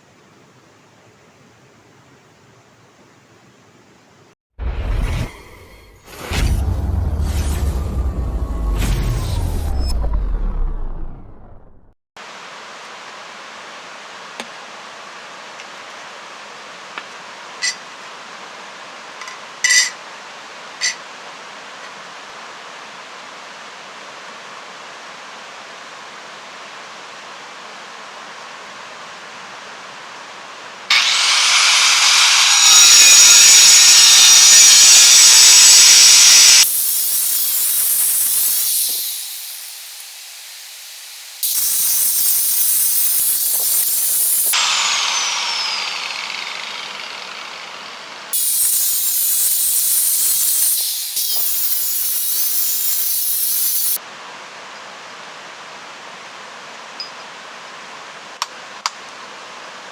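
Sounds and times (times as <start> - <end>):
angle grinder cutting stone: 30.9 - 54.0.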